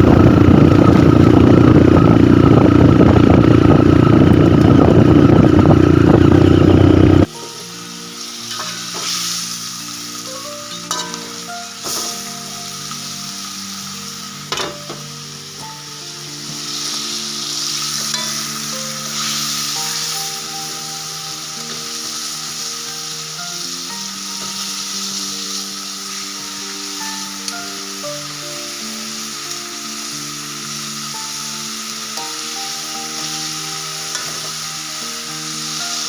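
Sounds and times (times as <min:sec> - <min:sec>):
food sizzling in a frying pan: 0:07.0 - 0:36.0
background music of held notes: 0:07.2 - 0:36.0.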